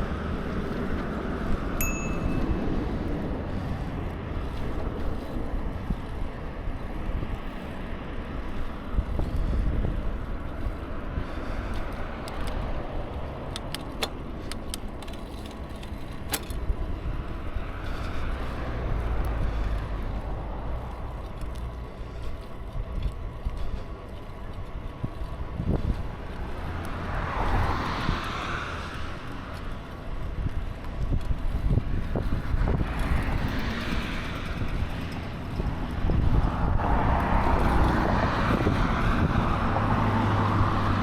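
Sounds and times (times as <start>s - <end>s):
bicycle road noise: 0.0s - 41.0s
wind buffeting microphone: 0.0s - 41.0s
sharp clicks: 13.4s - 16.7s.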